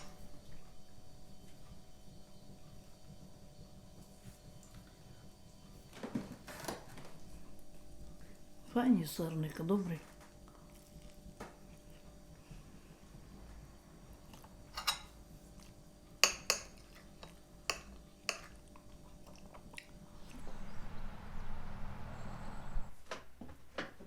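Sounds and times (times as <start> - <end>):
dishes and utensils clinking: 14.6 - 15.2
rushing noise: 20.2 - 22.9.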